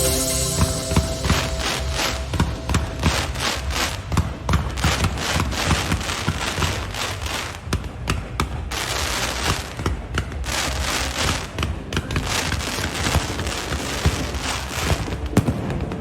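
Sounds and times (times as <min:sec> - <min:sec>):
fireworks hissing: 0:00.0 - 0:04.2
fireworks bangs and crackles: 0:00.1 - 0:16.0.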